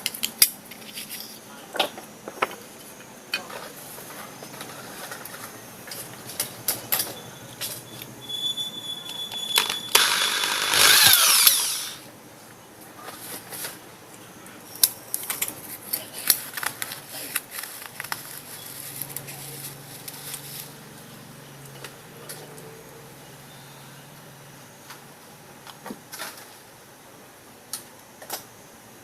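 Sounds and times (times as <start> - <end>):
small power tool winding down: 9.6 - 12.0.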